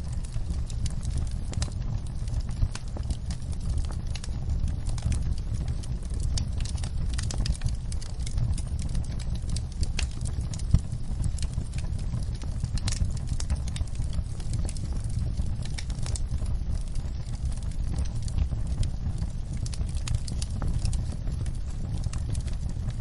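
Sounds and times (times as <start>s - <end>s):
low rumble of flames: 0.0s - 23.0s
wood fire crackling: 0.0s - 23.0s
sharp pops and snaps: 0.2s - 22.8s.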